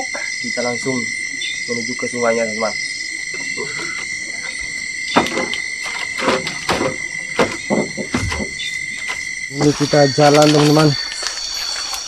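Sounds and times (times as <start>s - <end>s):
crickets trilling: 0.0s - 12.0s
rustling footsteps: 4.4s - 12.0s.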